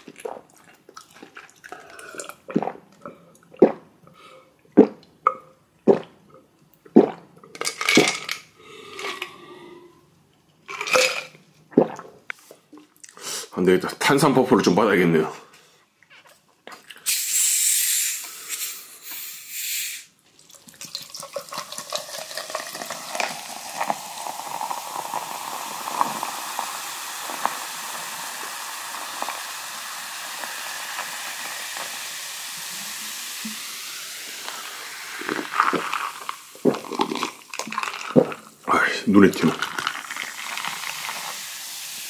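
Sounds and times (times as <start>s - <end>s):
soft drink fizzing: 0.0s - 3.9s, 4.6s - 9.6s, 10.7s - 13.2s, 16.7s - 42.0s
soft drink can opening hiss: 17.0s - 20.2s, 23.0s - 37.5s.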